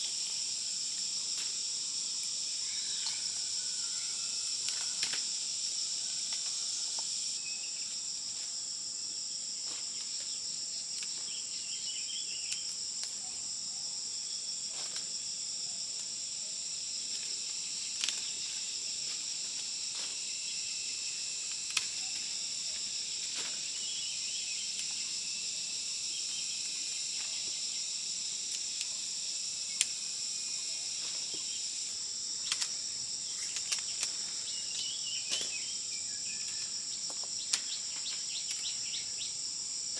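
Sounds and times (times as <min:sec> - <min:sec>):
shrill insect chorus: 0:00.0 - 0:39.9.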